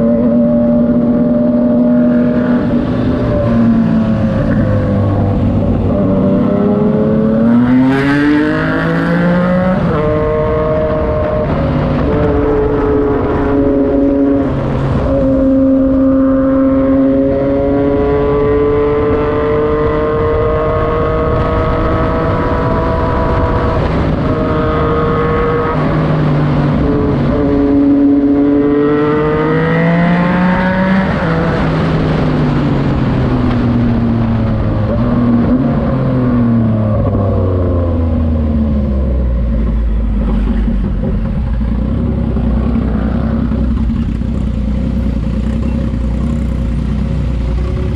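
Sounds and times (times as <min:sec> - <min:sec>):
motorcycle engine accelerating: 0:00.0 - 0:47.9
motorcycle engine slowing: 0:31.5 - 0:47.9.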